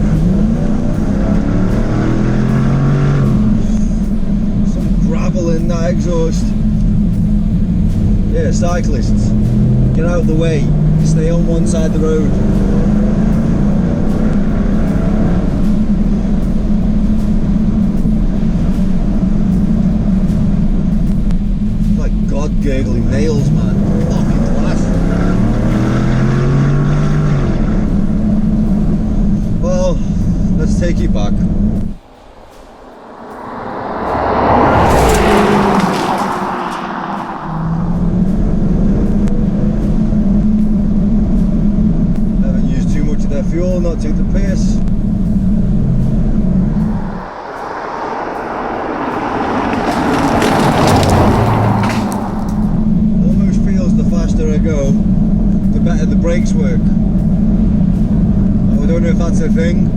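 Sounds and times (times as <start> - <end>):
car engine and exhaust gurgling: 0.0 - 59.9.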